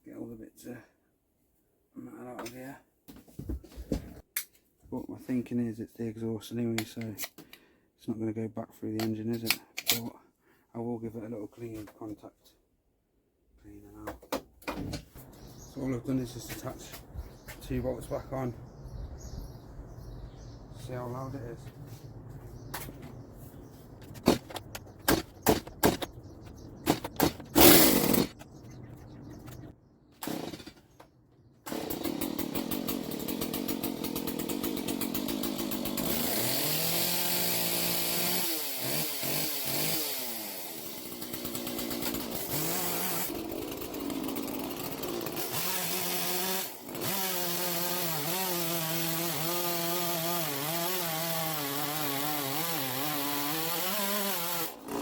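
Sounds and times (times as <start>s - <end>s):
chainsaw engine revving: 26.9s - 28.4s, 30.2s - 30.8s, 31.6s - 55.0s.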